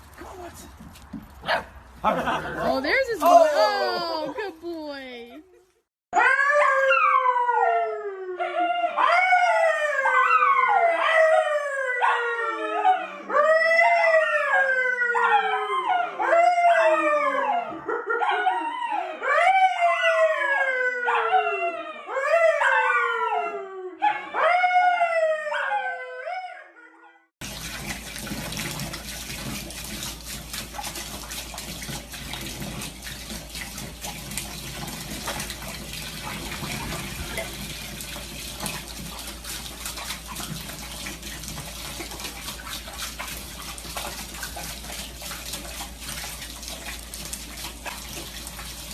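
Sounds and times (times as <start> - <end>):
running water: 0.0 - 5.5, 27.4 - 48.9
dog howling: 6.2 - 27.0.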